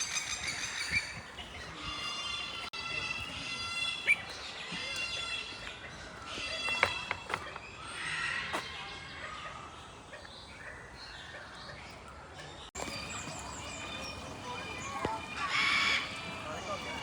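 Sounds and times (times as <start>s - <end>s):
birds calling: 3.5s - 17.0s.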